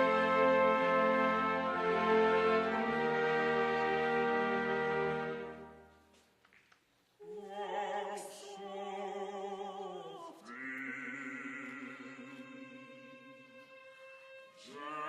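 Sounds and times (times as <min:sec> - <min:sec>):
operatic voice singing with vibrato: 0:07.2 - 0:15.0.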